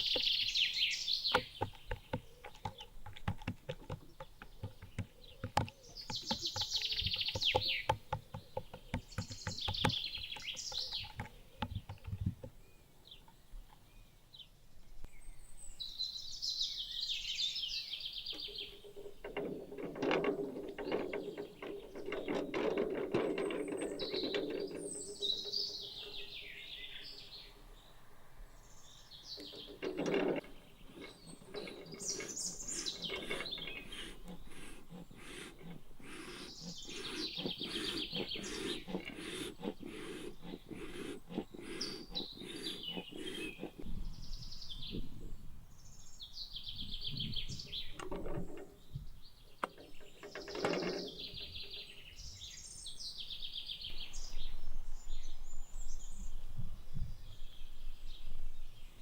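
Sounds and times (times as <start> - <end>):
wild birds singing: 0.0 - 59.0
irregular clicks and knocks: 1.3 - 12.6, 18.3 - 26.0, 29.3 - 44.1, 47.2 - 52.0.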